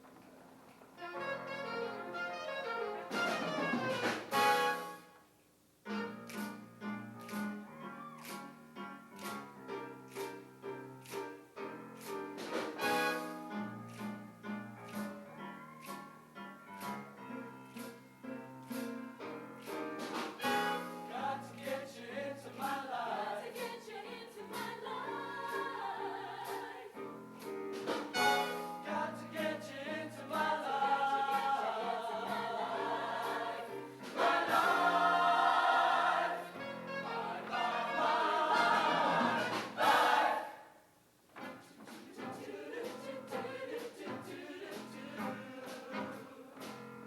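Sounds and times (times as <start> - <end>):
instrumental accompaniment: 1.0 - 5.2, 26.4 - 29.6
choir singing: 20.4 - 27.2, 28.1 - 40.8, 41.9 - 47.0.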